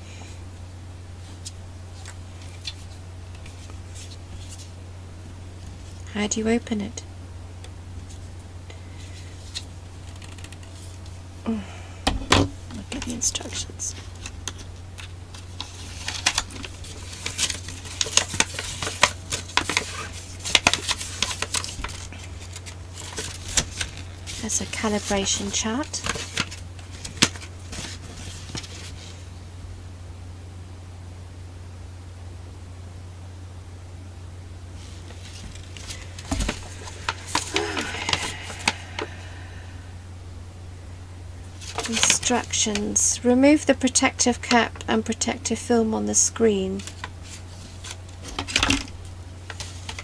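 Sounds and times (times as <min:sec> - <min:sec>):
steady low hum: 0:00.0 - 0:50.0
paper crinkling: 0:01.2 - 0:04.8, 0:12.8 - 0:29.3, 0:34.8 - 0:39.5, 0:41.5 - 0:43.0, 0:46.6 - 0:50.0.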